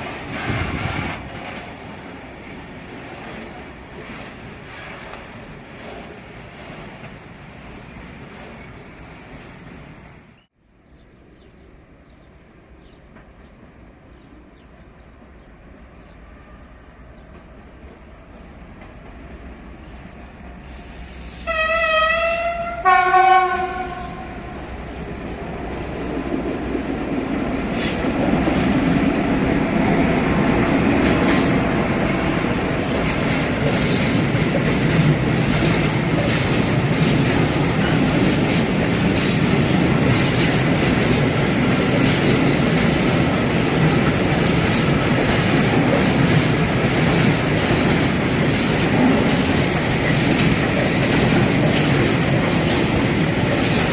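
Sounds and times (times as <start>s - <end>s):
train horn blasts: 20.6s - 24.6s.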